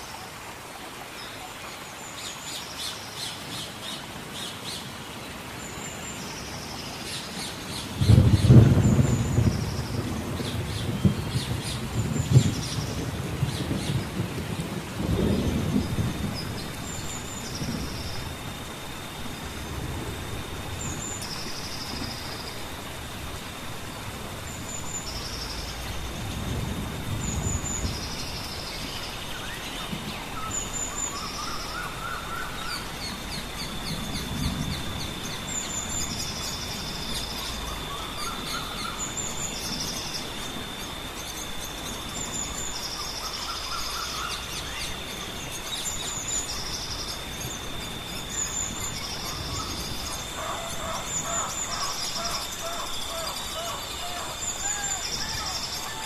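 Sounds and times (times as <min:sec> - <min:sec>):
birds chirping: 0:23.9 - 0:56.0
low rising bird call: 0:49.2 - 0:56.0.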